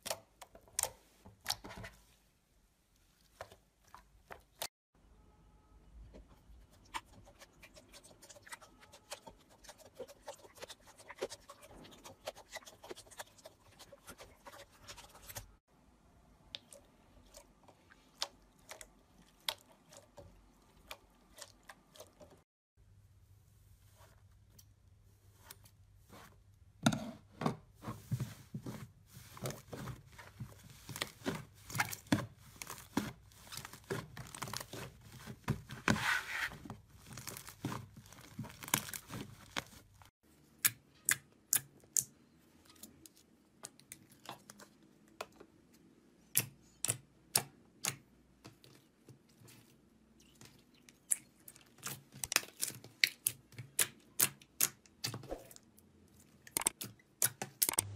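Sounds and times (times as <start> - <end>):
crunchy material crackling and tearing: 29.2 - 40.1.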